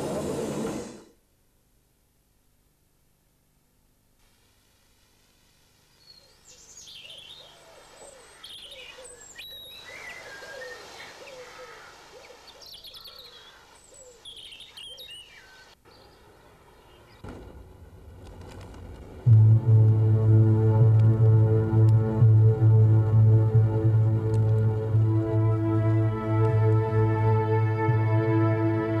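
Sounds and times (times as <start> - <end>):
birds singing: 5.9 - 17.3
short low repeated bird calls: 5.9 - 17.3
low rumble: 17.4 - 28.4.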